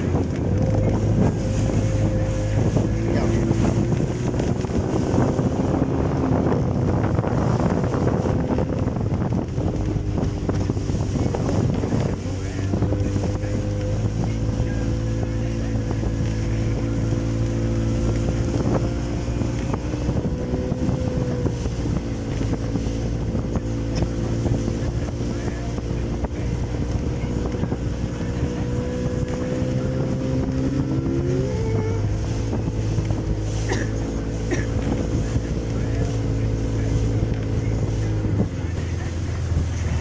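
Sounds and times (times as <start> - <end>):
outboard motor running: 0.0 - 40.0
wind on microphone: 0.0 - 40.0.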